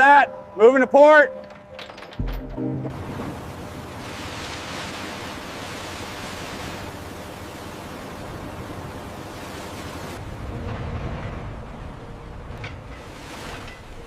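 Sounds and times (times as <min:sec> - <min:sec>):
steady rushing noise: 0:02.8 - 0:14.0.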